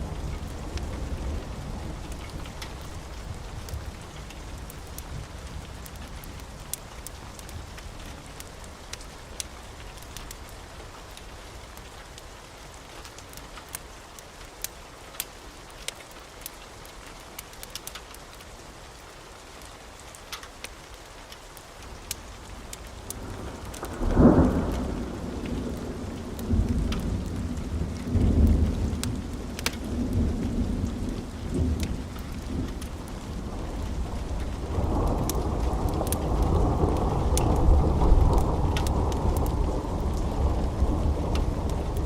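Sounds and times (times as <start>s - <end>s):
steady rain: 0.0s - 42.0s
wood fire crackling: 0.0s - 42.0s
thunderclap and rolling thunder: 23.1s - 42.0s.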